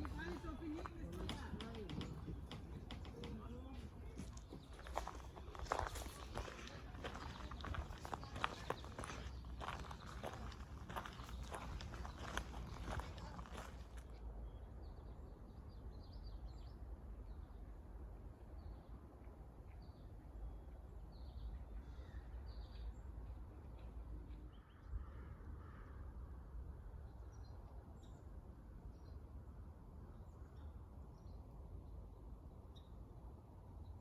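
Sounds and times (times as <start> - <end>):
birds chirping: 0.0 - 14.0
low outdoor rumble: 0.0 - 15.0.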